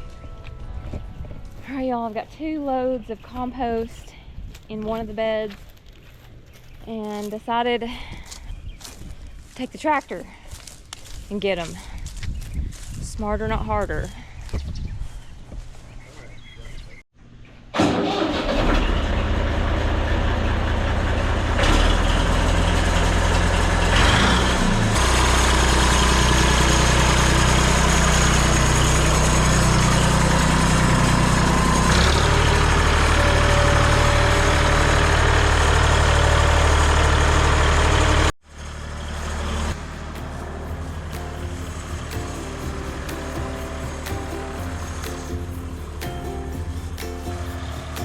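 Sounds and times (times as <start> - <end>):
tractor engine running: 17.8 - 48.0
quieter engine sound: 19.0 - 48.0.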